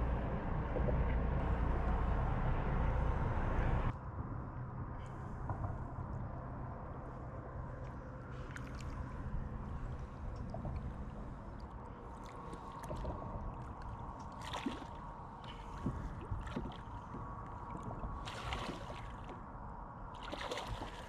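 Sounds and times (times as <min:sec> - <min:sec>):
steady low hum: 0:00.0 - 0:21.0
water sloshing around boat: 0:07.0 - 0:21.0
water splash: 0:14.2 - 0:17.0, 0:18.2 - 0:19.3, 0:20.2 - 0:21.0.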